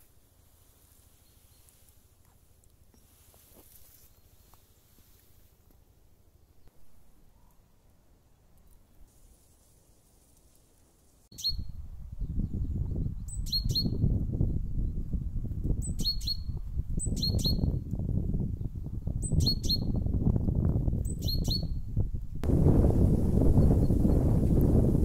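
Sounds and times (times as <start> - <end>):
songbird calling sharp high notes: 11.3 - 11.7.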